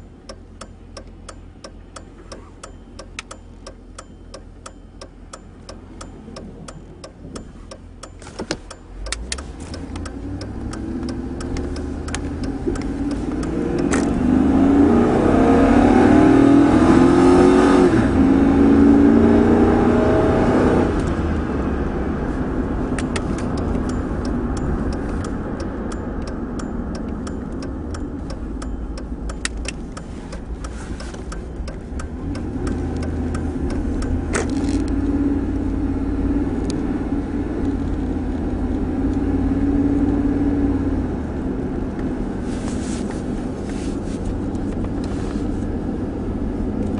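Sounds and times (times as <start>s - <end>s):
regular ticking: 0.0s - 17.5s, 22.4s - 40.7s
truck engine accelerating: 0.0s - 46.9s.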